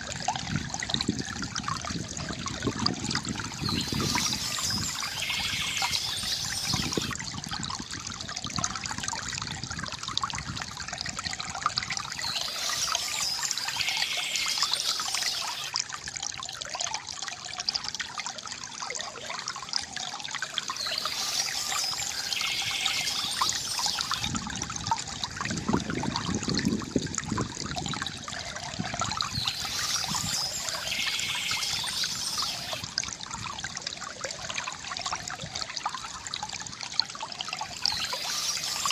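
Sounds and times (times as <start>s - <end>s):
water trickling from fountain spout: 0.0s - 38.9s
birds chirping: 3.6s - 7.2s, 12.2s - 15.7s, 20.7s - 24.3s, 29.3s - 32.8s, 37.7s - 38.9s.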